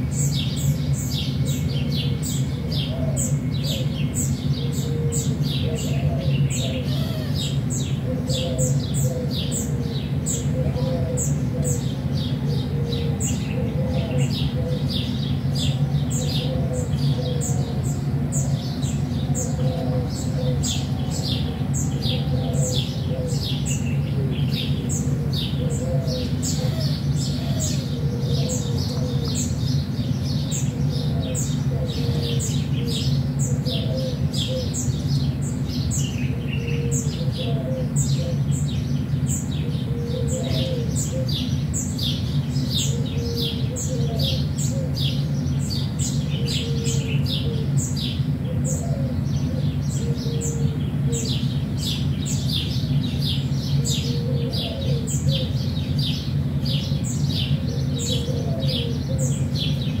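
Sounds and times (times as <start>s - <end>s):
small birds chirping: 0.0s - 60.0s
steady low hum: 0.0s - 60.0s.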